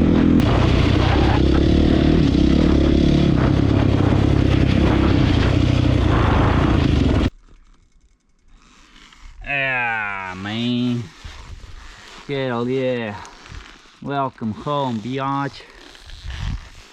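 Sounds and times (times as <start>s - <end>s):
motorcycle engine running loud: 0.0s - 7.3s.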